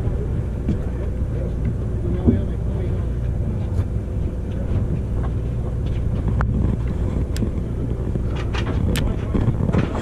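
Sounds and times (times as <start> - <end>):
boat engine rumble: 0.0 - 10.0
wind buffeting microphone: 0.0 - 10.0.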